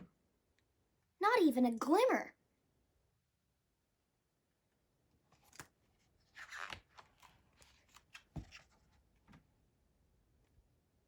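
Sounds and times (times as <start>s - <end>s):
paper page rustling: 5.3s - 9.4s.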